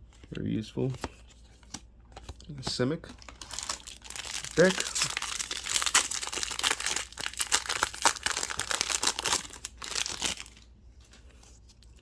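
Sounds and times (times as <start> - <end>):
foil wrapper crinkling: 3.2 - 10.7.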